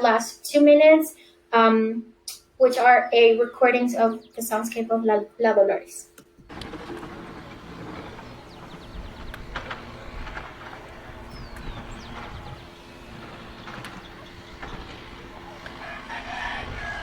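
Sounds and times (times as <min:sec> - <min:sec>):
steady hum: 0:06.2 - 0:17.0
distant traffic rumble: 0:06.4 - 0:17.0.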